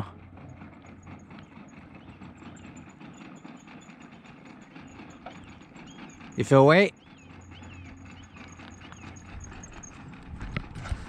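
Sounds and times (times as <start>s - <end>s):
distant motorboat engine hum: 0.0s - 11.0s.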